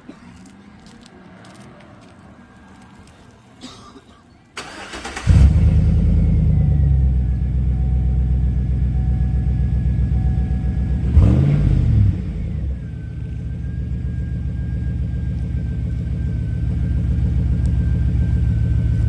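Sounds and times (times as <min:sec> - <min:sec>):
truck engine idling: 0:04.6 - 0:11.4, 0:12.0 - 0:19.0
engine revving: 0:04.6 - 0:13.6.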